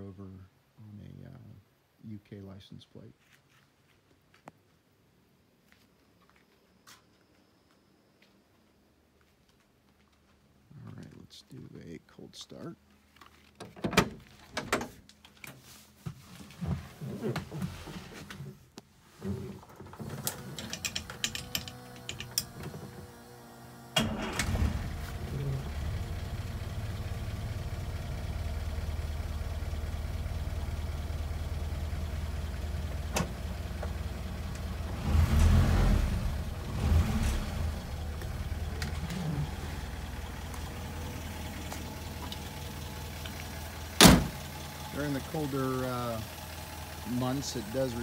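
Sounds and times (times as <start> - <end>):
starter motor cranking: 19.9 - 26.0
engine idling: 23.2 - 48.0.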